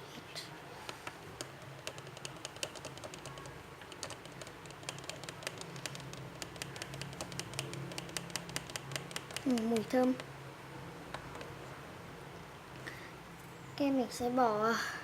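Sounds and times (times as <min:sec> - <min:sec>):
plastic stirrer clicking in tub: 0:01.4 - 0:10.3.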